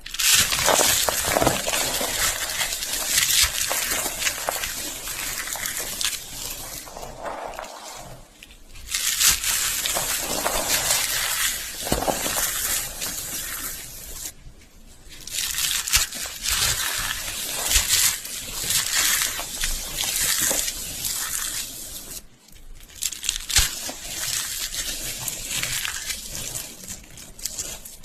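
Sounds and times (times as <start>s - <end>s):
slate pencils being crunched: 0.0s - 14.3s.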